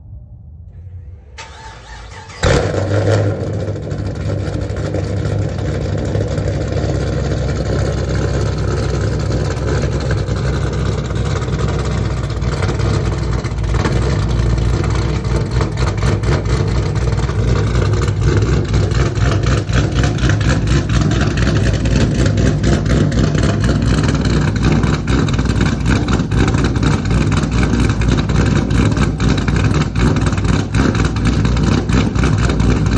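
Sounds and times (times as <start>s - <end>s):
loud uneven engine idle: 0.7s - 32.9s
engine cranking: 1.4s - 32.9s.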